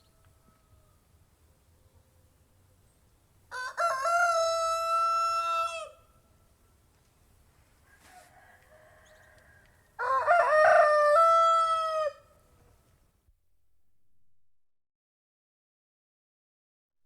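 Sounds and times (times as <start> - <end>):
rooster crowing: 0.0 - 1.0, 3.5 - 6.1, 7.8 - 12.5.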